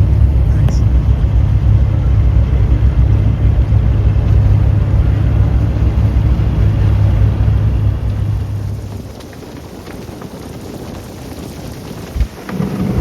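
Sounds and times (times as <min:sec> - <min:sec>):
boat engine rumbling: 0:00.0 - 0:13.0
water and air noise: 0:00.0 - 0:13.0.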